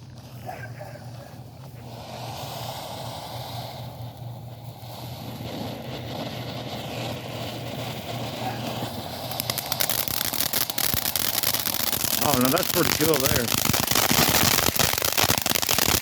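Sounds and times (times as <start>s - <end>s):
firework crackling: 0.0s - 16.0s
firework fountain hissing: 0.0s - 16.0s.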